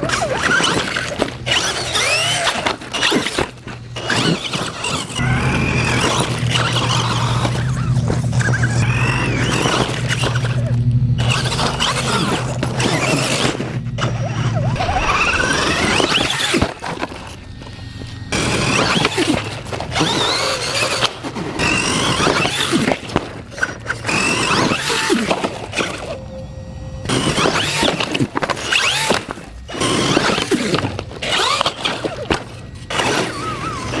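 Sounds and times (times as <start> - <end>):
tyre noise: 0.0 - 26.2
electric motor whining: 0.0 - 34.0.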